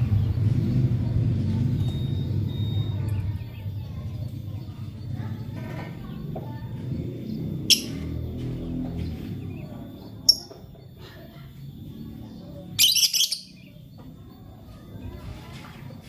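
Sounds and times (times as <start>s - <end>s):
bird chirping: 7.2s - 10.9s, 12.2s - 14.5s.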